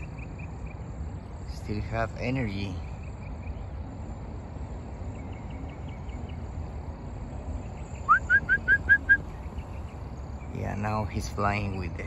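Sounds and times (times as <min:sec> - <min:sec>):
bird chirping: 0:00.0 - 0:12.0
bird call with rising notes: 0:04.7 - 0:11.2.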